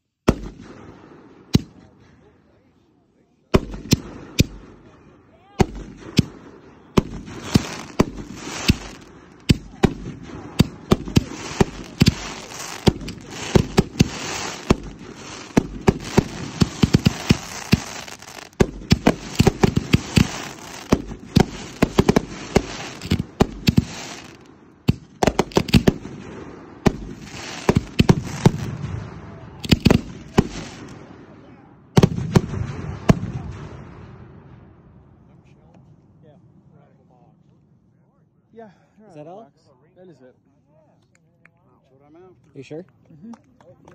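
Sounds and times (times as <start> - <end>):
firework launch and burst bangs: 0.2 - 2.1, 3.5 - 5.0, 5.6 - 31.4, 32.0 - 34.8
hiss of firework fountains: 7.2 - 10.0, 10.6 - 24.5, 26.9 - 28.8.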